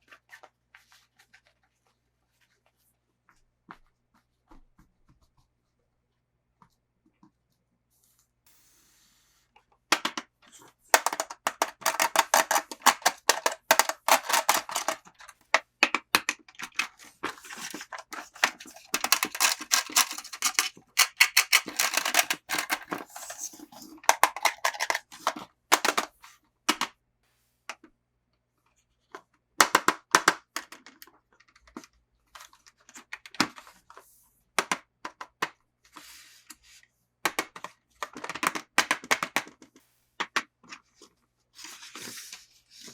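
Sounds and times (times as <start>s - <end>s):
toy packaging crackling and tearing: 11.0s - 15.2s, 16.1s - 26.1s.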